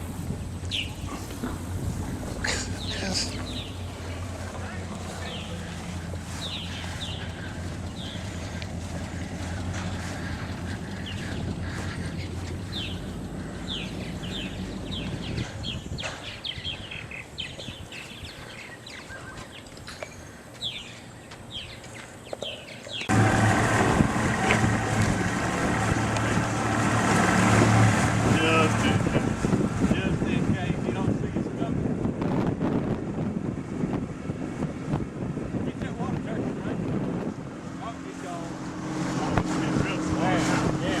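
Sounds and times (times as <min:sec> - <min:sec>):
boat motor running: 0:00.0 - 0:16.0, 0:23.1 - 0:41.0
wind on microphone: 0:00.0 - 0:18.6, 0:23.1 - 0:41.0
birds chirping: 0:00.0 - 0:31.7.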